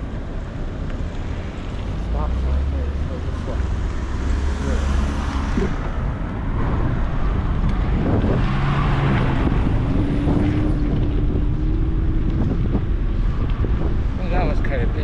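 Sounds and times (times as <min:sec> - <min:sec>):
passing vehicle hum: 0:00.0 - 0:14.2
road traffic: 0:00.0 - 0:15.0
wind on microphone: 0:03.5 - 0:15.0.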